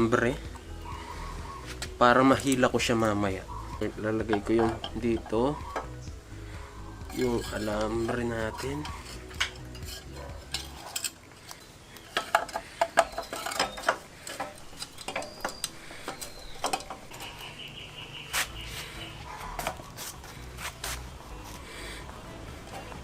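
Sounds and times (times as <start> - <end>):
metal clicks and taps: 9.0 - 17.2.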